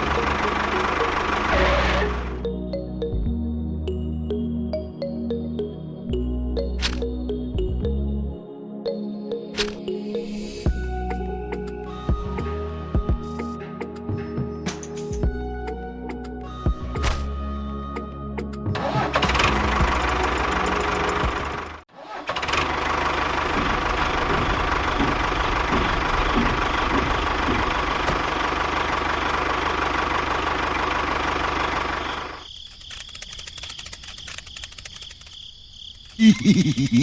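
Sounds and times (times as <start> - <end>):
fast quiet clicking: 32.5 - 36.2.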